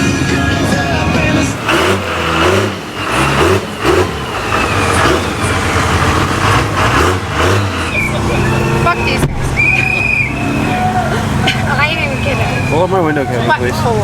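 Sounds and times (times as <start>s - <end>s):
truck engine revving: 0.0s - 14.0s.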